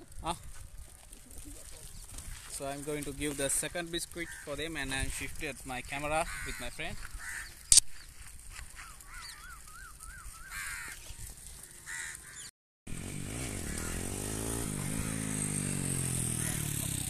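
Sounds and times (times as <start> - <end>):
bird calling: 4.1 - 4.8, 6.1 - 8.2, 8.8 - 12.5, 13.5 - 15.6.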